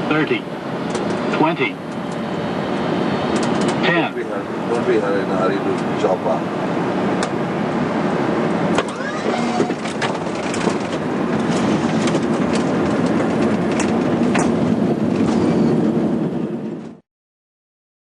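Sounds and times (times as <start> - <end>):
airliner rolling down runway: 0.0 - 17.0
clicks and rattles in cockpit: 3.3 - 3.8, 9.6 - 15.4.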